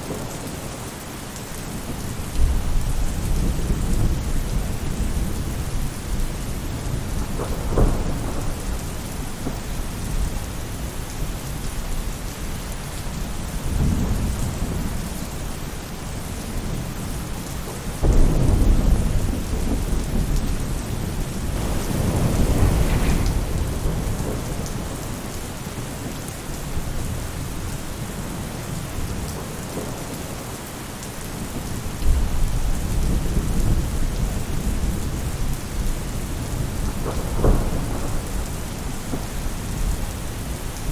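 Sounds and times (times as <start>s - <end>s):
rain falling on a roof: 0.0s - 40.9s
thunder rolling: 2.4s - 10.4s, 18.0s - 26.2s.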